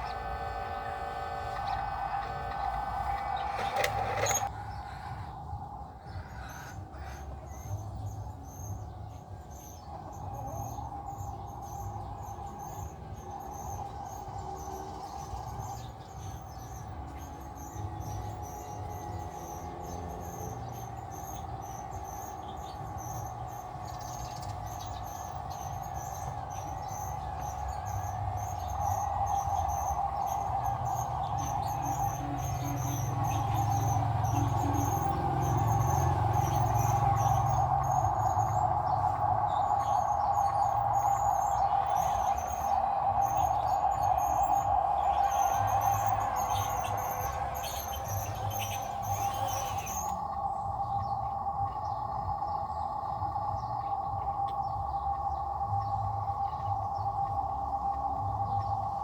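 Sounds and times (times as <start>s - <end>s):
diesel engine rumble: 0.0s - 6.0s, 9.2s - 54.8s
engine whine: 0.0s - 59.0s
insect chirping: 0.0s - 59.0s.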